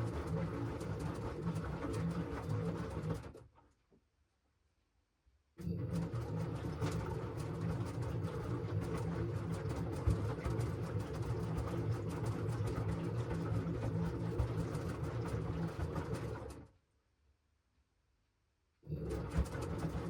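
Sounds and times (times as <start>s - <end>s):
washing machine churning hum: 0.0s - 3.7s, 5.6s - 16.8s, 18.9s - 20.0s.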